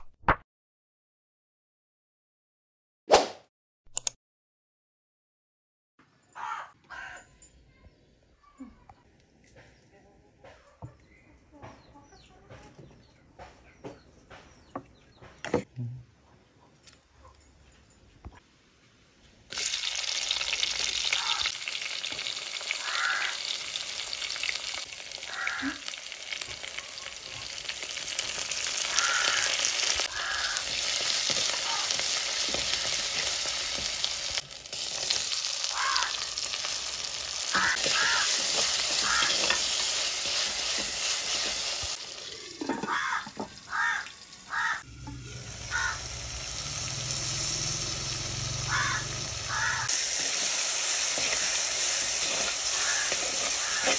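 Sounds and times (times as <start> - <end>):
shallots sizzling in hot oil: 19.5 - 53.9
metal spoon stirring: 37.6 - 41.8, 51.0 - 53.9.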